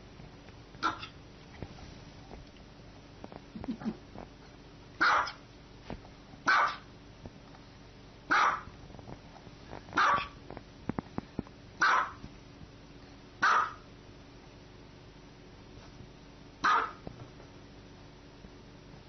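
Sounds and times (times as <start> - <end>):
dog barking: 0.8 - 1.1, 5.0 - 5.4, 6.5 - 6.9, 8.3 - 8.7, 10.0 - 10.4, 11.8 - 12.2, 13.4 - 13.8, 16.6 - 17.0.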